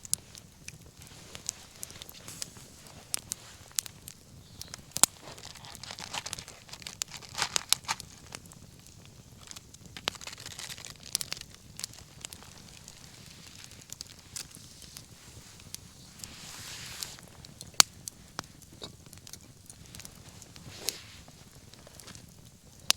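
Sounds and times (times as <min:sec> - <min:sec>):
faint hiss: 0:00.0 - 0:22.9
wood bonfire crackling and popping: 0:00.0 - 0:22.9.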